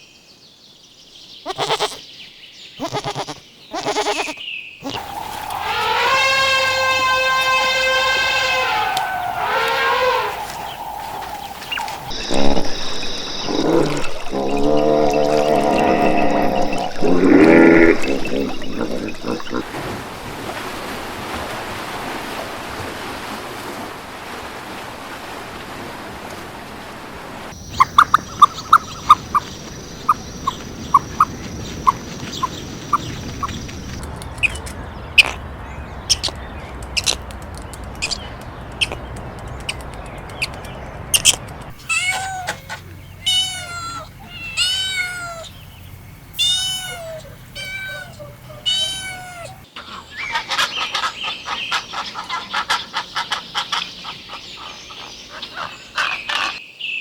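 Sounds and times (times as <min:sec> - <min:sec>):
cat meowing: 0:01.5 - 0:02.0, 0:02.8 - 0:07.9, 0:41.8 - 0:45.6, 0:46.4 - 0:49.6
sharp clicks and taps: 0:36.2 - 0:41.7.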